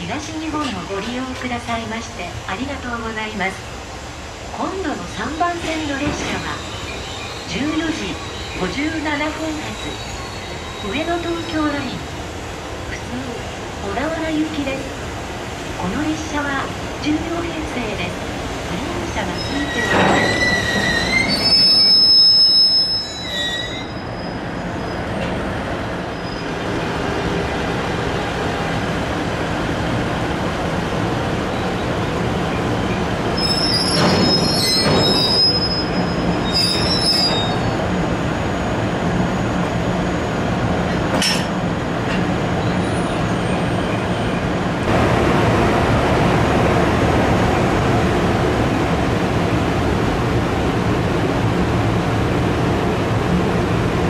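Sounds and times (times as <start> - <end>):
wheel squeal: 19.4 - 25.0, 33.4 - 37.8
train wheels rumbling on rails: 24.0 - 54.0.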